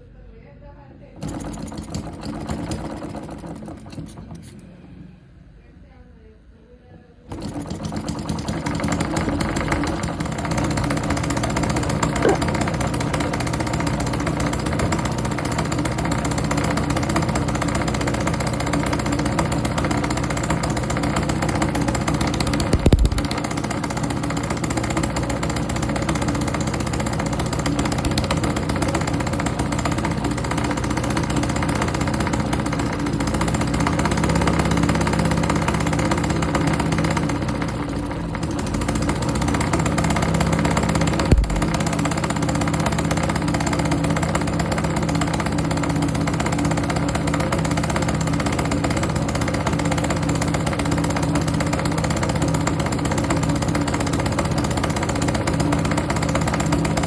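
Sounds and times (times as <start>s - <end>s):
small four-stroke engine running: 0.0s - 5.6s, 7.2s - 57.0s
low thump: 41.3s - 41.7s.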